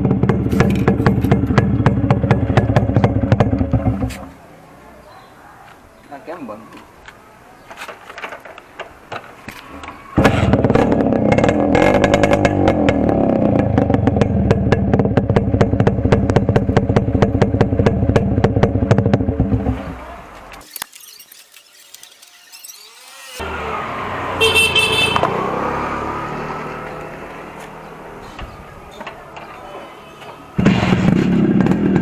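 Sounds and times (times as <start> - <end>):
two-stroke motorcycle engine running: 0.0 - 4.1, 10.2 - 19.8
exhaust crackling with sharp pops: 0.0 - 4.3, 10.2 - 20.6, 30.3 - 32.0.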